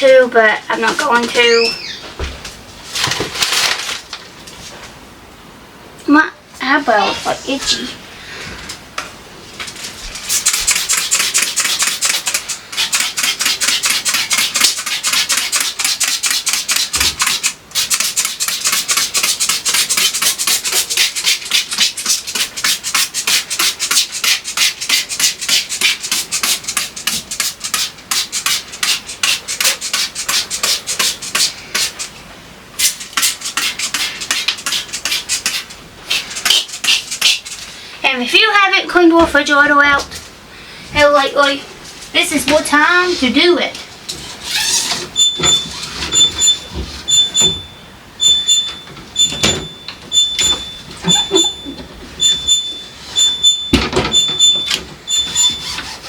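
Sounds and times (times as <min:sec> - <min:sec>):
scrubbing and wiping strokes: 0:09.8 - 0:32.2.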